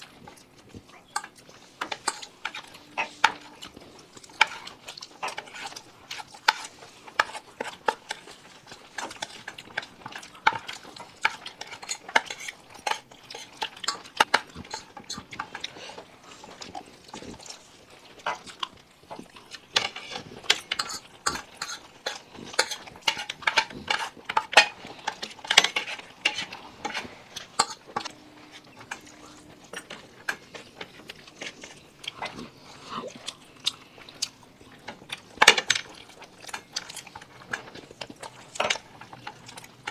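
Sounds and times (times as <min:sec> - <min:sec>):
spoons clinking on plates: 0:01.0 - 0:03.8, 0:19.7 - 0:30.6.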